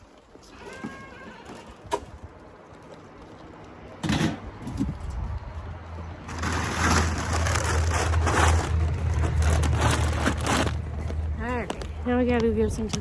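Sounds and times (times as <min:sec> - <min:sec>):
low rumble: 0:04.7 - 0:13.0.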